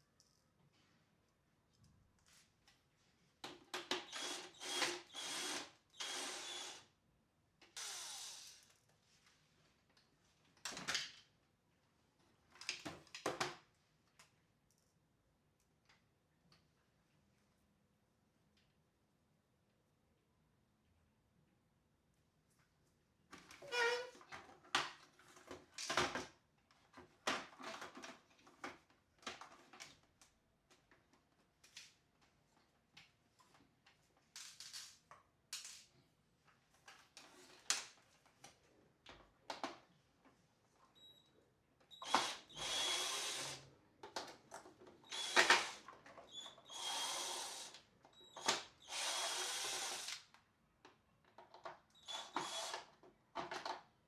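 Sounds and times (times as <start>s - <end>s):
small power tool running: 4.2s - 6.8s, 48.9s - 50.2s.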